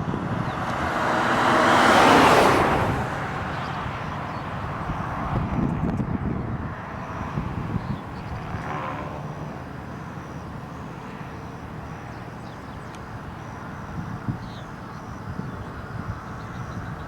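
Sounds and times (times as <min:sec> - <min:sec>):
road noise: 0:00.0 - 0:17.0
vehicle engine rumble: 0:00.0 - 0:17.0.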